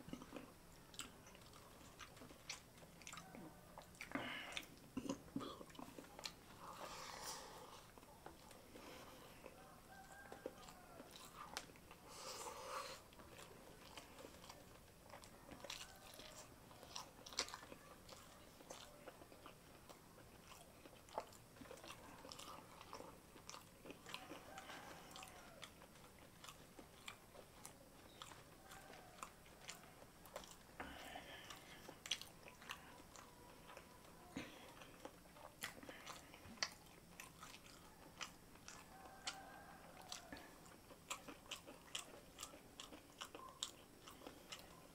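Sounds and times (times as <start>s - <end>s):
close-up chewing with wet mouth clicks: 0.0s - 44.9s.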